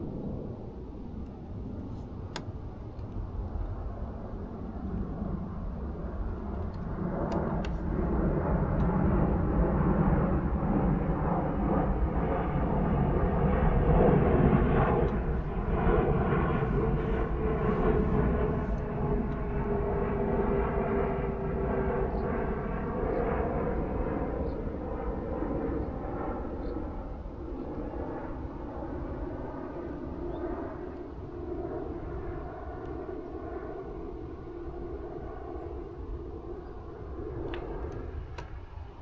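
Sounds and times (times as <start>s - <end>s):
aeroplane engine drone: 0.0s - 39.0s.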